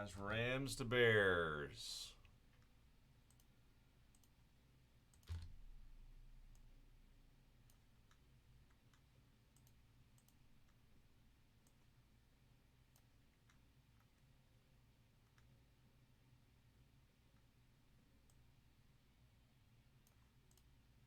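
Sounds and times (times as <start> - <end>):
computer mouse clicks: 2.6 - 3.5, 4.1 - 4.4, 5.1 - 5.6, 7.6 - 10.8, 12.9 - 14.3, 15.2 - 15.6, 20.0 - 20.8.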